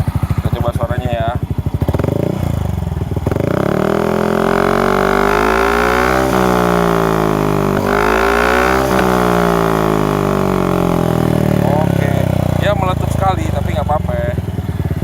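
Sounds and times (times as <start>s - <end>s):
scooter engine revving: 0.0s - 15.0s.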